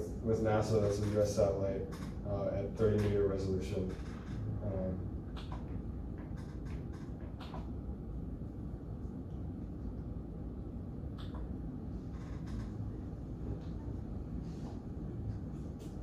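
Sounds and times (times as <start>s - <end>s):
steady low hum: 0.0s - 16.0s
faint clicks: 0.1s - 7.8s, 11.1s - 16.0s.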